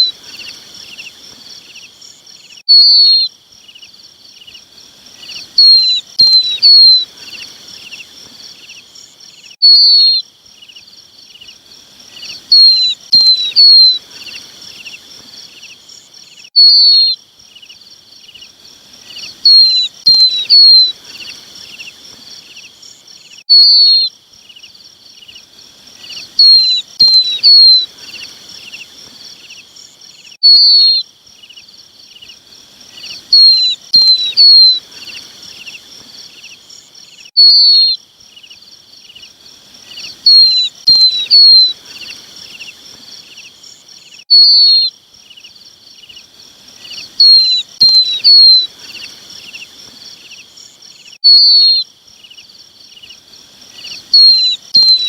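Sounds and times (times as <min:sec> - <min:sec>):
chicks calling high downward calls: 0:12.2 - 0:14.5, 0:19.1 - 0:21.4, 0:26.0 - 0:28.4, 0:33.0 - 0:35.8, 0:39.9 - 0:42.7, 0:46.8 - 0:49.7, 0:53.8 - 0:55.0.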